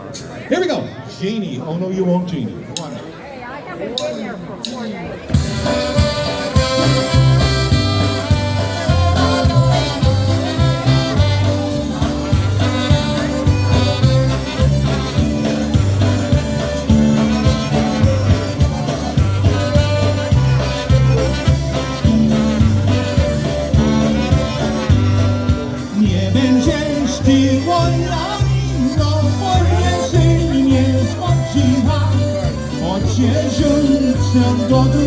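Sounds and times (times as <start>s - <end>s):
polka band playing: 4.0s - 35.0s.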